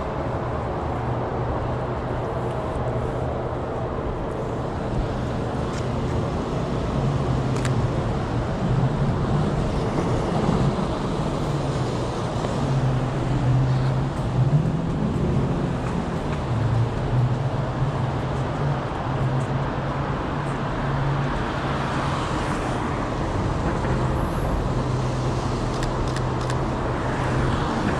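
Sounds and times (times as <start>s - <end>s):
rumble of passing cars: 0.0s - 27.9s.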